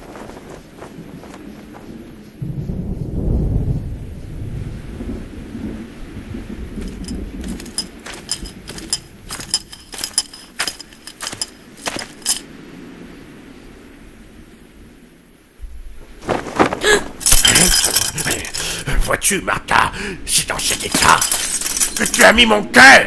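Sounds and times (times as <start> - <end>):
light metallic clinks and jingles: 6.8 - 12.5, 17.2 - 18.8, 20.6 - 22.6.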